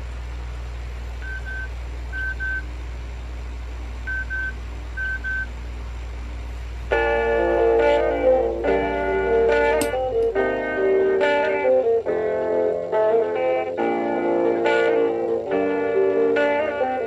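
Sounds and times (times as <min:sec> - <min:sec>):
steady low hum: 0:00.0 - 0:17.0
short electronic beeps: 0:04.1 - 0:05.5
plucked guitar music: 0:06.9 - 0:17.0.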